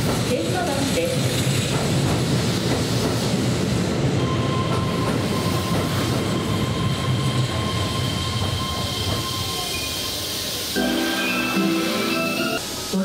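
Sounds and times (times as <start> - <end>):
train wheels rumbling on rail: 0.0 - 11.1
steady high tone: 10.7 - 12.8.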